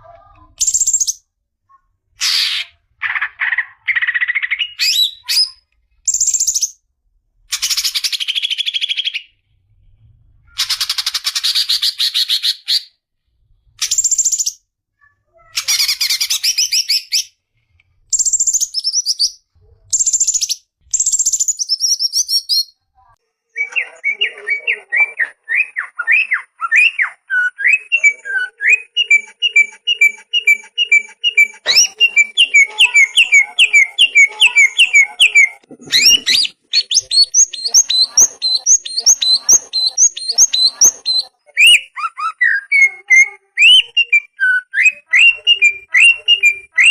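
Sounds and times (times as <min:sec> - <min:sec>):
songbird trills and whistles: 0:20.0 - 0:22.7, 0:23.6 - 0:46.9
higher repeated chirps: 0:27.8 - 0:41.9.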